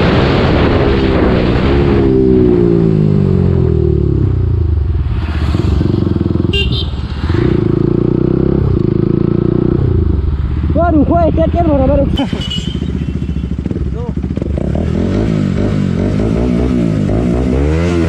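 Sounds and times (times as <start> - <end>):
motorcycle engine running: 5.5 - 17.4.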